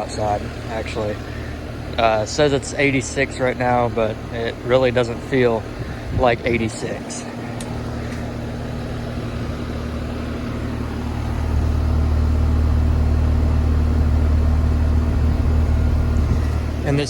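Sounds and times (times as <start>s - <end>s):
air conditioner unit humming: 0.0s - 17.0s.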